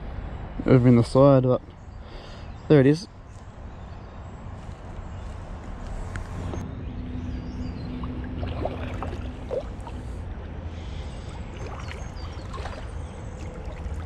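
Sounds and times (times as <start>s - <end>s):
water rumbling around kayak: 7.4s - 14.0s.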